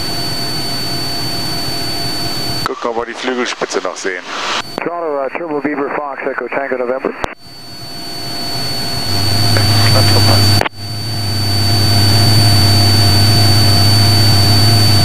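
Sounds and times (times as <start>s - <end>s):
airplane engine and propeller: 7.4s - 15.0s
strong low hum: 7.4s - 15.0s.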